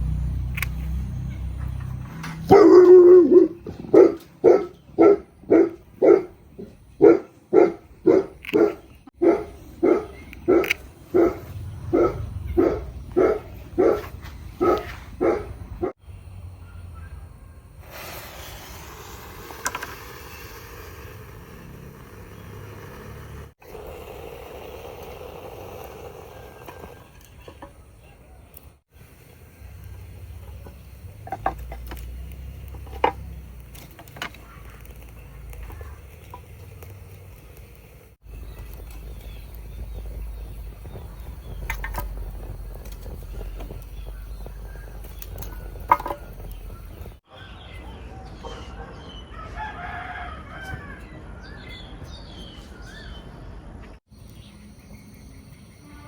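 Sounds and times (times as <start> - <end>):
dog barking: 2.5 - 6.4, 7.0 - 16.0, 47.9 - 49.1.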